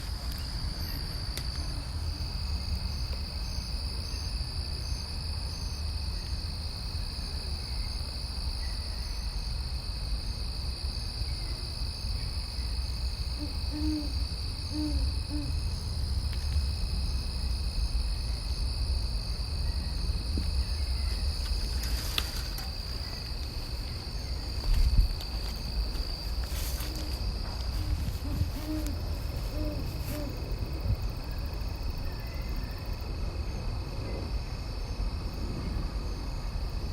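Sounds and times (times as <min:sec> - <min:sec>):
owl hooting: 0:13.3 - 0:15.8, 0:27.8 - 0:30.6.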